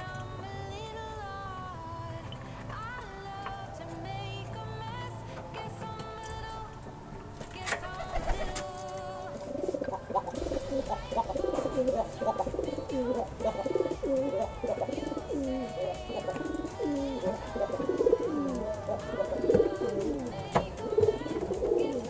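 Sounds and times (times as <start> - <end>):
background music: 0.0 - 22.0
pigeons cooing: 7.9 - 22.0.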